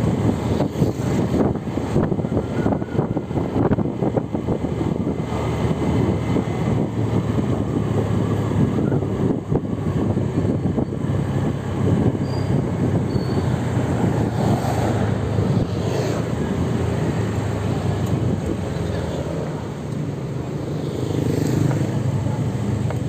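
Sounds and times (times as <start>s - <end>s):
traffic rumble: 0.0s - 23.0s
vehicle passing: 13.4s - 23.0s.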